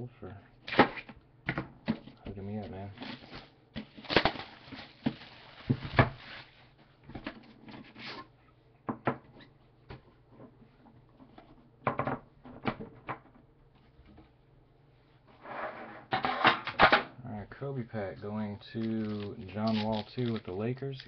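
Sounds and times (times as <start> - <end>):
card packs rustling: 2.5 - 6.7, 18.3 - 21.0.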